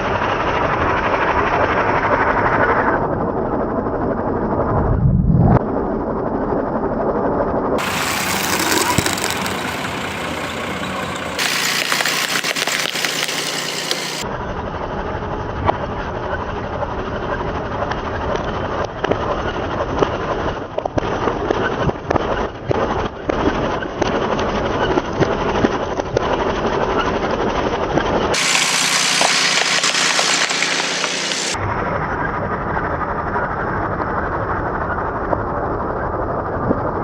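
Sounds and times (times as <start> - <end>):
objects cracking and crunching: 7.8 - 10.3, 11.4 - 14.2
tractor running: 7.8 - 14.2, 28.4 - 31.6.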